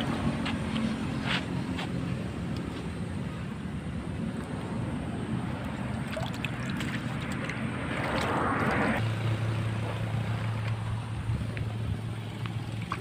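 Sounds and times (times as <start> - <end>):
steady low hum: 0.0 - 13.0
water splashing: 5.4 - 10.6, 12.1 - 13.0.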